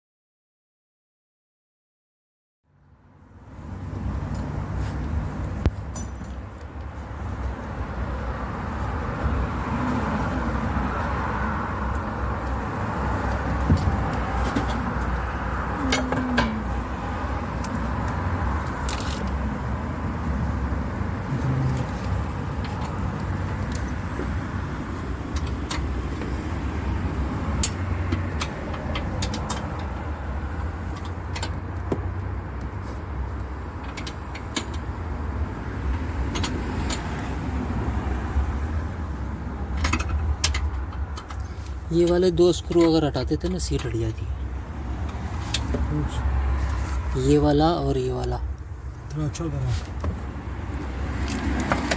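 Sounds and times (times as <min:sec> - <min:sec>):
motor vehicle rumble: 0:03.2 - 0:51.9
sharp clicks and knocks: 0:39.7 - 0:43.1, 0:51.1 - 0:51.9.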